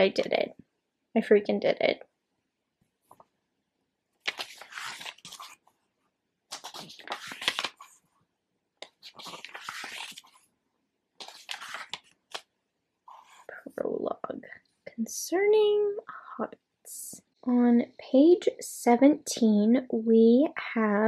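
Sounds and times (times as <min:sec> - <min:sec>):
book pages turning: 0:04.2 - 0:05.9, 0:06.5 - 0:08.2, 0:08.8 - 0:10.5, 0:11.2 - 0:12.5.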